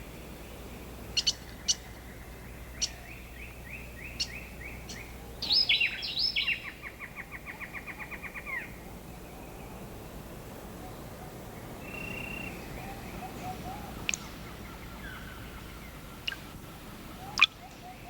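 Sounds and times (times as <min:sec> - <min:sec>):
birds chirping: 0:11.5 - 0:18.0.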